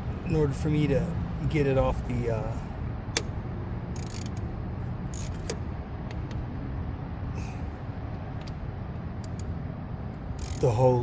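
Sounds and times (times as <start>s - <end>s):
small parts clicking and scraping: 4.0s - 4.5s, 5.1s - 5.6s, 10.4s - 10.8s.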